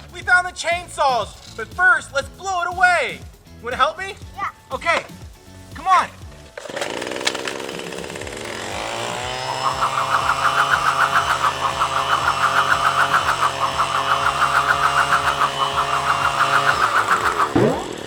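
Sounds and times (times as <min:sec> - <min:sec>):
toy leaf blower engine sound: 0:06.6 - 0:18.0.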